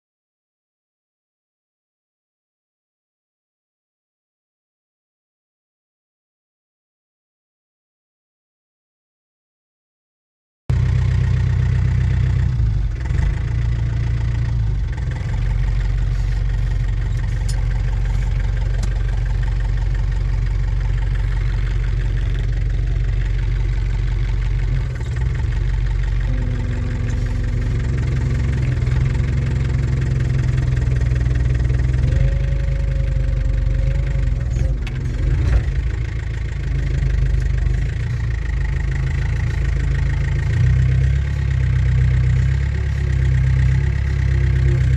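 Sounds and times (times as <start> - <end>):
tractor diesel engine running: 10.7 - 44.9
faint whine: 16.0 - 35.8.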